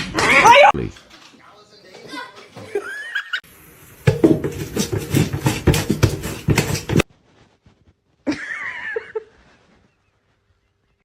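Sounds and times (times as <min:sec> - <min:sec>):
rapid clattering and scuffling: 0:04.0 - 0:08.0.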